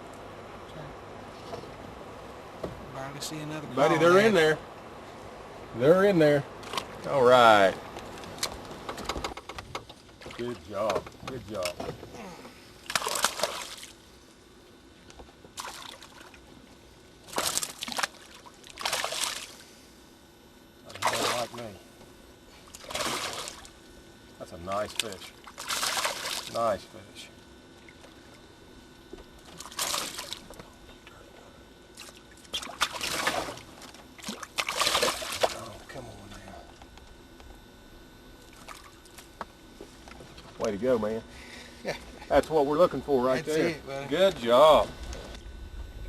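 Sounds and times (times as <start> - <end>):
water splashing and sloshing: 6.6 - 7.1, 10.0 - 10.6, 12.8 - 14.1, 15.5 - 16.5, 17.2 - 19.7, 20.9 - 21.7, 22.6 - 23.8, 24.8 - 26.6, 29.3 - 31.1, 31.9 - 35.9, 38.4 - 39.3.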